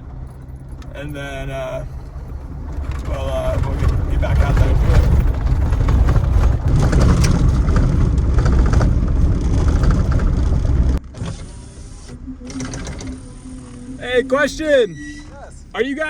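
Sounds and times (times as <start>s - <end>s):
rattles and knocks: 0.0s - 1.0s, 1.8s - 11.4s
road noise inside truck cab: 0.0s - 16.0s.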